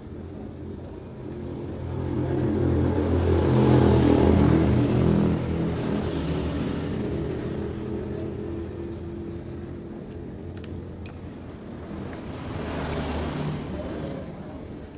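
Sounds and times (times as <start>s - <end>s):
vehicle engine passing by: 0.8s - 10.0s, 11.9s - 14.6s.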